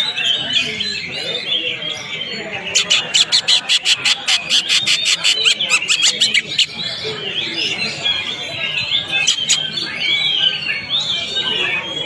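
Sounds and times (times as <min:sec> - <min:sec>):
bird sharp chips and warbling: 0:02.1 - 0:07.0, 0:08.6 - 0:10.6.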